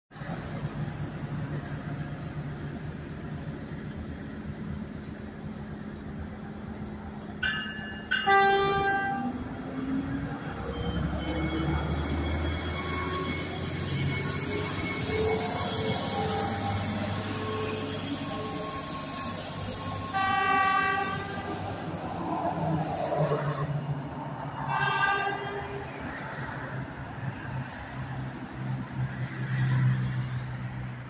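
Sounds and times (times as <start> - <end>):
diesel railcar engine idling: 0.2 - 10.7
train horn: 8.2 - 9.4, 16.2 - 21.8, 24.6 - 25.9.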